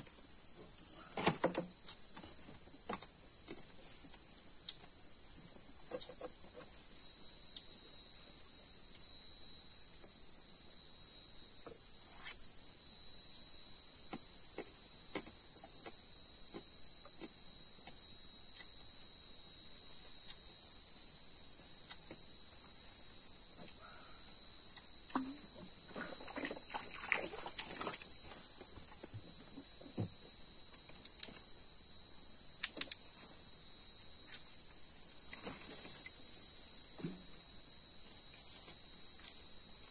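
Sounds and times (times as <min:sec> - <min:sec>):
crickets and night insects chirping: 0:00.0 - 0:39.9
small clicks and knocks: 0:32.6 - 0:33.0.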